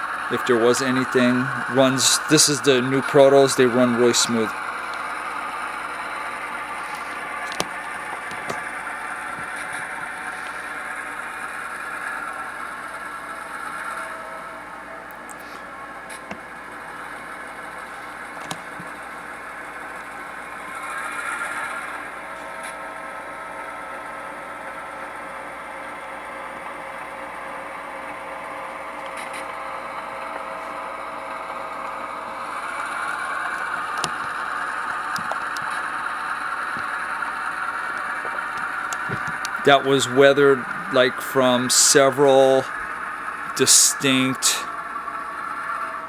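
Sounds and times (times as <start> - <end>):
diesel engine sound through speaker: 0.0 - 22.5, 38.0 - 46.0.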